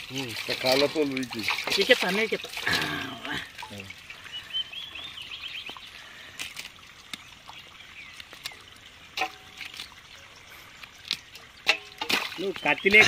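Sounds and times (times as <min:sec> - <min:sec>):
wet clicks and water trickles: 0:00.0 - 0:13.0
small bird chirping: 0:04.2 - 0:06.0.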